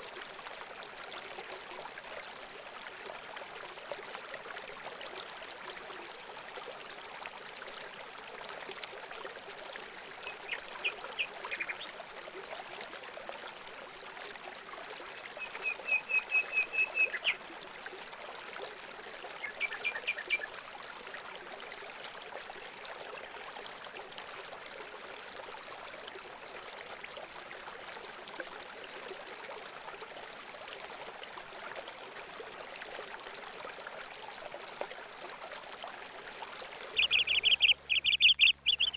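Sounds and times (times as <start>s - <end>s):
water trickling: 0.0s - 38.9s
bird calling high notes: 37.0s - 38.9s.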